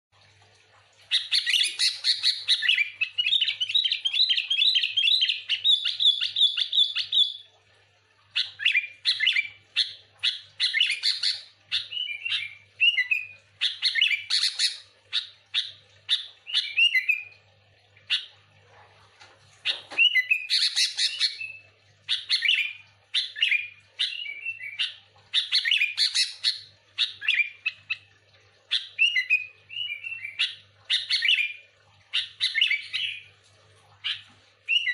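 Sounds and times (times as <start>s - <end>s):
bird singing: 8.4s - 17.3s, 19.7s - 28.0s.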